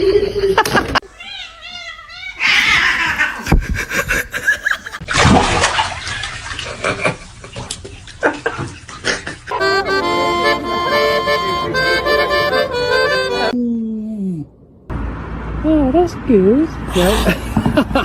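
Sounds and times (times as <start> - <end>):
cat yowling: 1.1 - 3.4.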